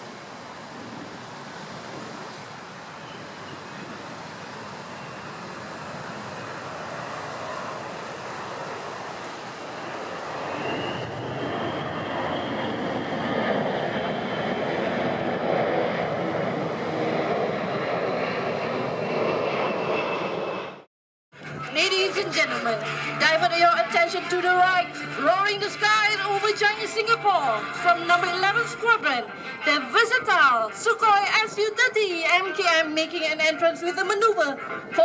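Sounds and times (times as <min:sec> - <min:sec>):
high engine whine: 0:00.0 - 0:35.0
jet engines roaring: 0:00.0 - 0:35.0.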